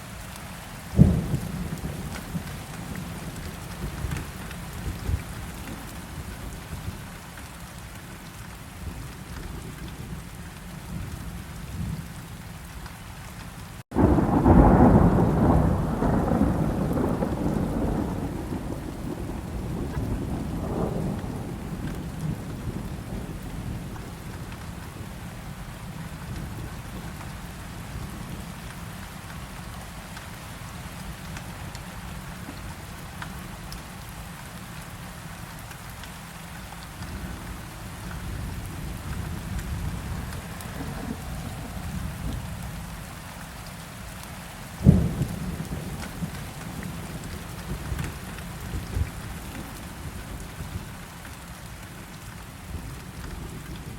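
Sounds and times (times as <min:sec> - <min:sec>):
heavy rain: 0:00.0 - 0:53.9
low rumble of thunder: 0:00.9 - 0:07.0, 0:13.9 - 0:28.7, 0:37.0 - 0:43.6, 0:44.8 - 0:53.9
loud thunder crack: 0:13.9 - 0:22.8.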